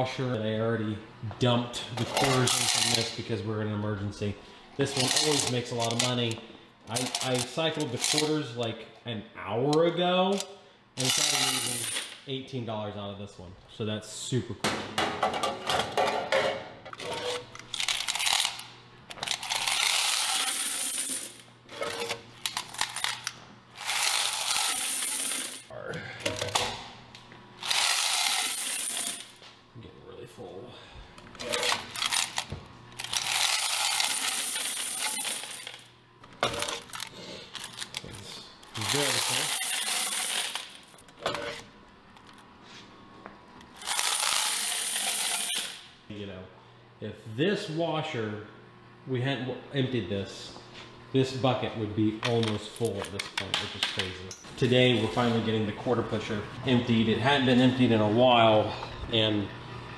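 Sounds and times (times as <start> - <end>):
metallic clatters of coin boxes: 1.9 - 3.2, 4.8 - 6.3, 6.9 - 8.4, 11.0 - 12.2, 15.2 - 25.7, 27.6 - 29.4, 31.4 - 41.6, 43.8 - 45.9
coins pouring into plastic bucket: 11.0 - 12.1, 19.3 - 21.4, 23.8 - 25.7, 27.6 - 29.3, 33.0 - 35.8, 38.8 - 41.0, 43.8 - 45.8.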